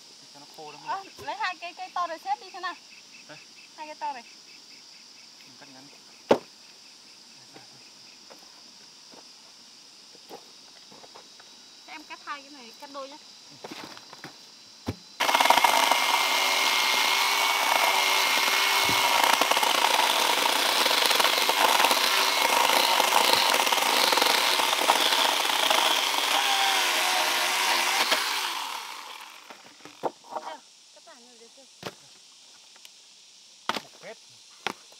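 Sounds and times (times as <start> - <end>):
power saw cutting wood: 15.2 - 30.1.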